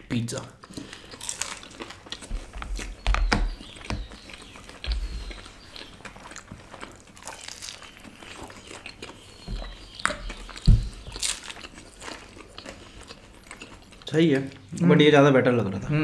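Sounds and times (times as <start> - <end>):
chewing and mouth sounds: 0.6 - 14.8
dull low thumps: 9.4 - 11.3.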